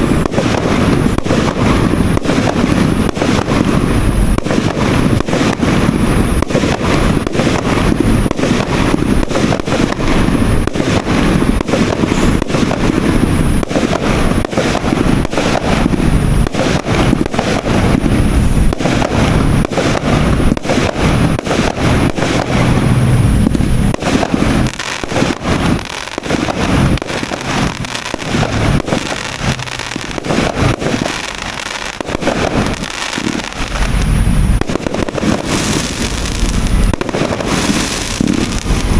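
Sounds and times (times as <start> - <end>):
constant rumble: 0.0 - 38.9
fireworks firing rapidly: 0.0 - 38.9.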